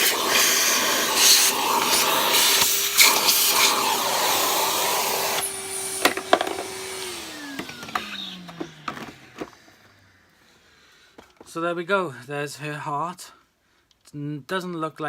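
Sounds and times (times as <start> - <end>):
vacuum cleaner running: 0.0 - 10.8.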